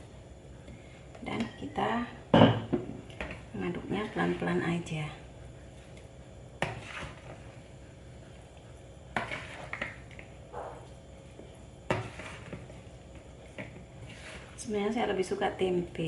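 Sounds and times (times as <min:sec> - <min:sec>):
utensil scraping mixing bowl: 0:06.6 - 0:07.5, 0:09.1 - 0:10.8, 0:11.9 - 0:12.8, 0:13.4 - 0:14.9.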